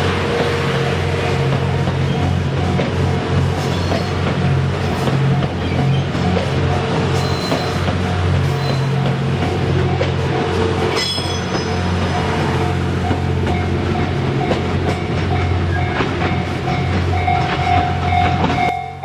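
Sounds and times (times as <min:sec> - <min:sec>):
diesel train engine: 0:00.0 - 0:19.0
level crossing alarm bell: 0:15.3 - 0:19.0.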